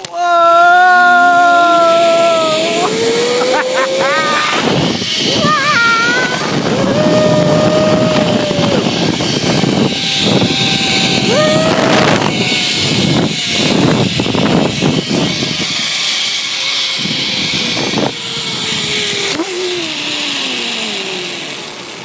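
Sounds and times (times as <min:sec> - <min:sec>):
zip line pulleys whining: 0:00.0 - 0:22.0
wind rush on microphone: 0:01.3 - 0:21.0.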